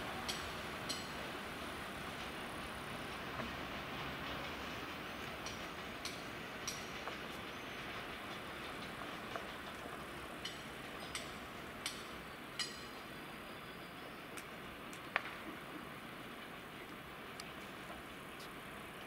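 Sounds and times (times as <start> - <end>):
wheels clicking over rail joints: 0.0 - 13.4
freight train rumble: 0.0 - 19.0.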